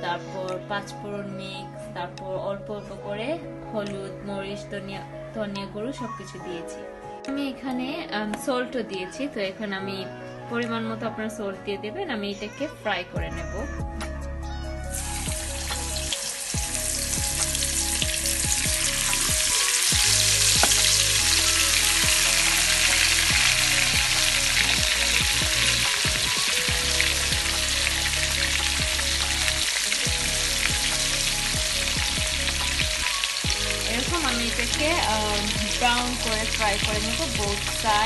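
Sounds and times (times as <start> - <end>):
meat sizzling in hot oil: 14.9 - 38.0.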